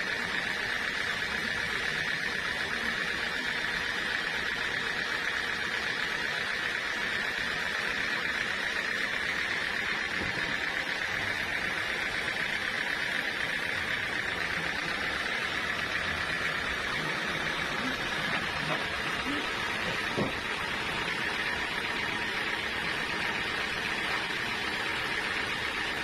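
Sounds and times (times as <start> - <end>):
sawmill saw cutting log: 0.0 - 26.0.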